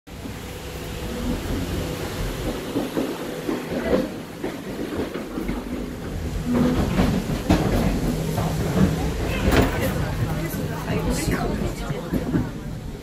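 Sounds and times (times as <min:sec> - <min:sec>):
train rumbling inside carriage: 0:00.1 - 0:13.0.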